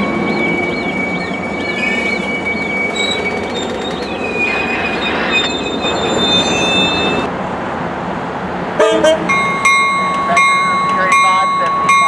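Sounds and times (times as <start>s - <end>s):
wheel squeal: 0.0s - 7.3s
train wheels rumbling on rails: 0.0s - 12.0s.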